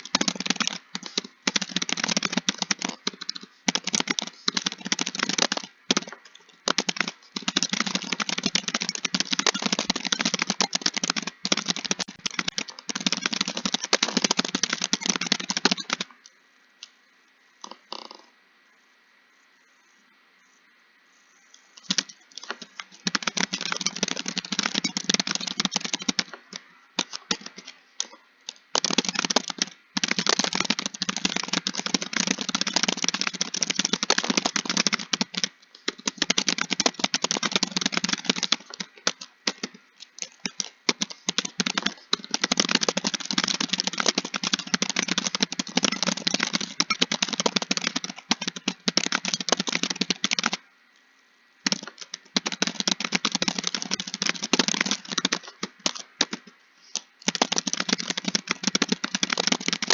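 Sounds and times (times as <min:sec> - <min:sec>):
typing on computer keyboard: 0:00.0 - 0:16.3, 0:21.8 - 0:50.6, 0:51.6 - 0:59.9.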